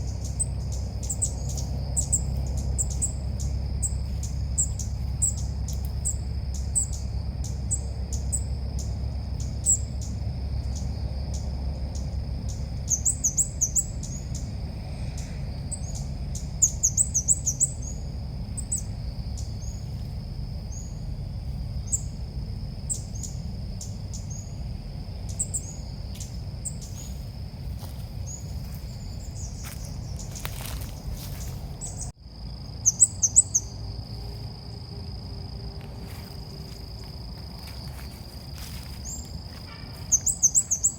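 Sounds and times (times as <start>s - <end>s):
bird chirping: 0.0s - 14.5s, 15.2s - 20.0s, 20.7s - 21.0s, 21.8s - 22.2s, 22.8s - 27.2s, 28.2s - 32.1s, 32.8s - 33.8s, 39.0s - 40.9s
low background hum: 0.0s - 40.9s.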